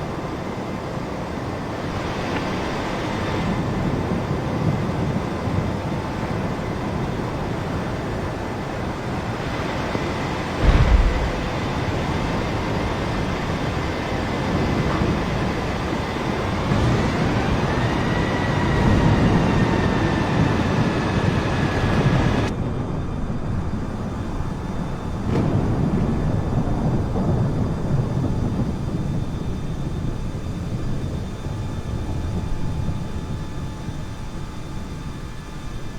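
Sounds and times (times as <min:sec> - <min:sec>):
jet engines rushing rumble: 0:00.0 - 0:35.9
sharp knock: 0:10.6 - 0:11.9.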